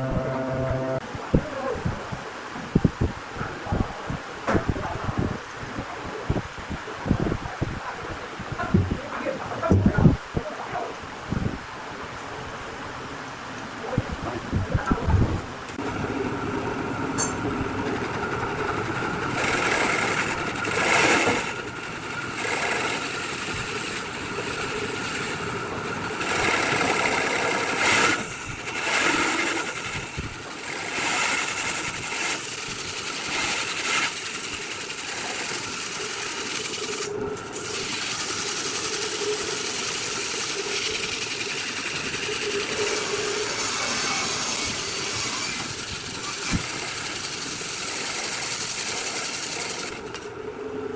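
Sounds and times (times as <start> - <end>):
woodworking machine cutting wood: 15.7 - 50.3.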